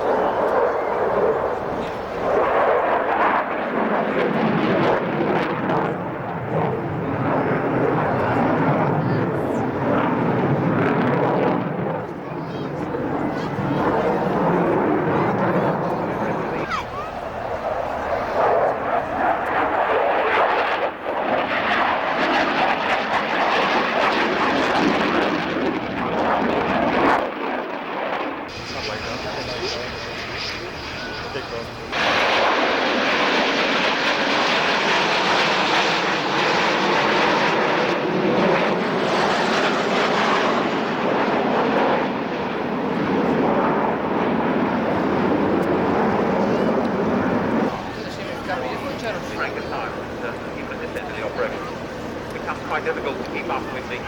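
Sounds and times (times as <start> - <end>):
aircraft engine roar: 0.0 - 54.0.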